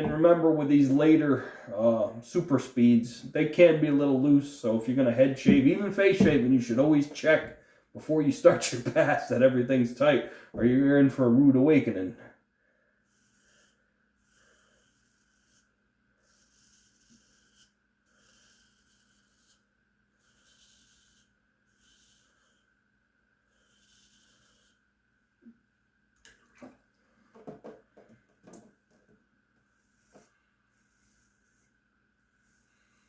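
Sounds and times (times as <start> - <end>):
razor scraping lathered scalp: 13.0 - 22.7, 23.4 - 24.8, 29.6 - 33.0.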